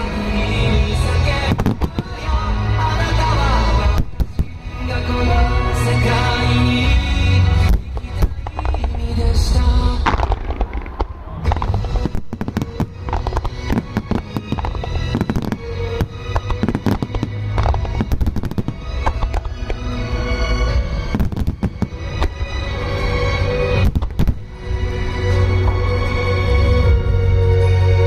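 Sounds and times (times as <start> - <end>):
fireworks bursting and crackling: 0.0 - 26.8.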